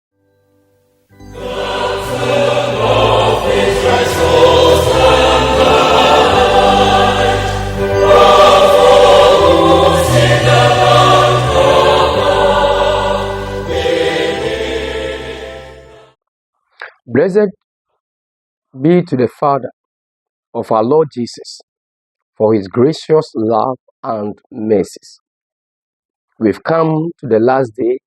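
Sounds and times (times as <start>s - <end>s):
gospel choir singing: 1.2s - 16.2s
sustained bass: 1.3s - 16.0s.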